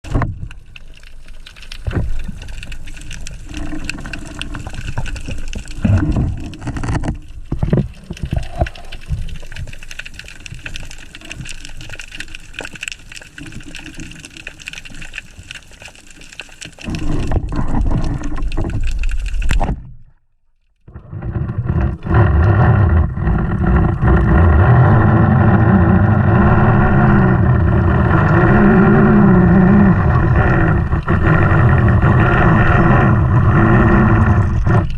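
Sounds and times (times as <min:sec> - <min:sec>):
water splashing and bubbling: 0:00.0 - 0:20.1, 0:20.8 - 0:34.9
boat engine droning: 0:22.2 - 0:34.8.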